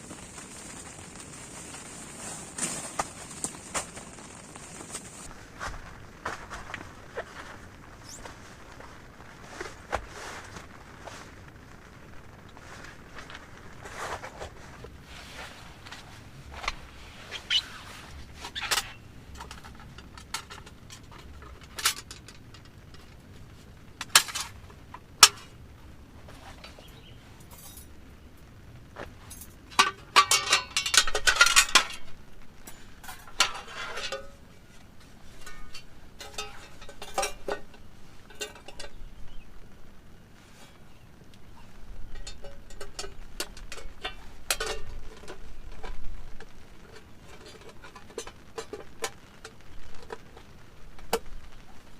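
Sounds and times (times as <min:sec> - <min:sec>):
cookware clinking and clattering: 0:29.8 - 0:34.4, 0:35.3 - 0:39.0, 0:42.1 - 0:46.0.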